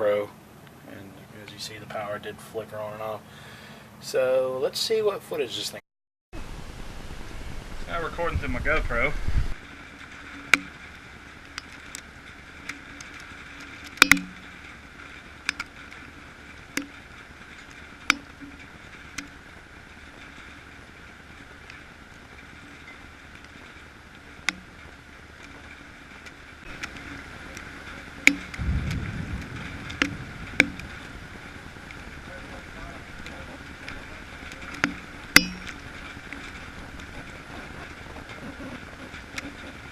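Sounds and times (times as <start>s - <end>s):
rain hissing: 6.4s - 39.9s
low thunder rumble: 26.7s - 36.9s.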